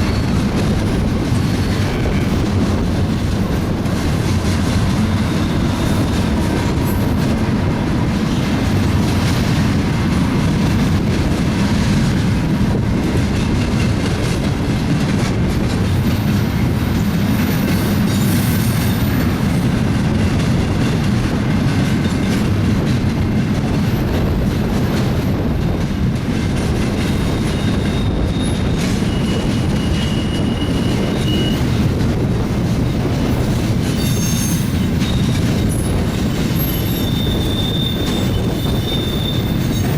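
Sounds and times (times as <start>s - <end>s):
high wheel squeals: 0.0s - 0.5s, 27.2s - 31.8s, 33.5s - 39.9s
train cars rolling past: 0.0s - 39.9s.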